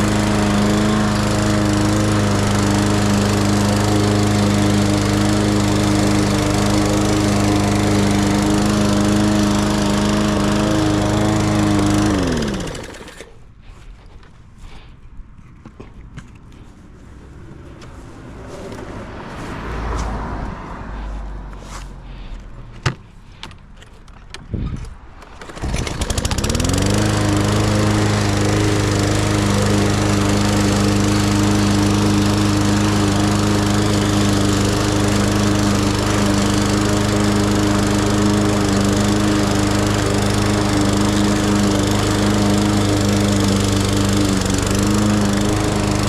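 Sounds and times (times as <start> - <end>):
lawn mower engine running: 0.0 - 13.8, 25.1 - 46.0.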